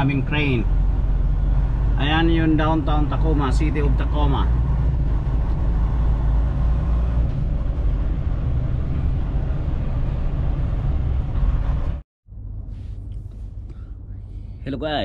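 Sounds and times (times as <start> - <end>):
truck engine and road rumble: 0.0 - 15.0
quiet low hum: 12.4 - 14.8.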